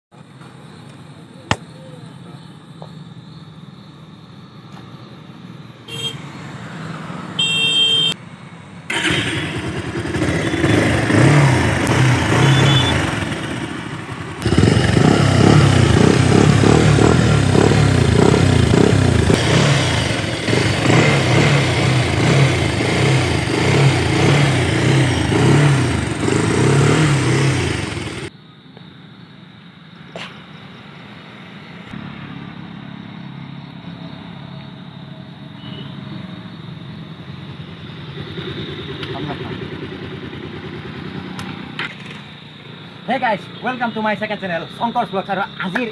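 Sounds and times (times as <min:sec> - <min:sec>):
road noise: 0:00.1 - 0:45.9
horn blast: 0:08.9 - 0:13.4
motorcycle engine: 0:08.9 - 0:28.3, 0:36.2 - 0:44.0.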